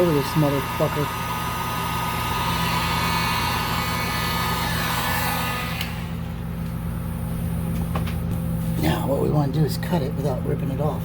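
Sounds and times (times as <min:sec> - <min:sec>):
heat gun blowing hot air: 0:00.0 - 0:09.0.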